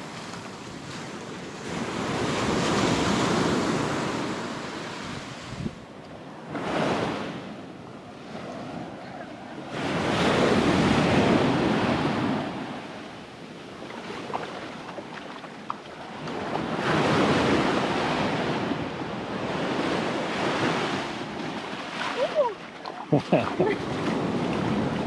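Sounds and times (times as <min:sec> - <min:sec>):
wind on the microphone: 0:00.0 - 0:13.0, 0:23.6 - 0:25.0
ocean surf breaking: 0:00.0 - 0:25.0.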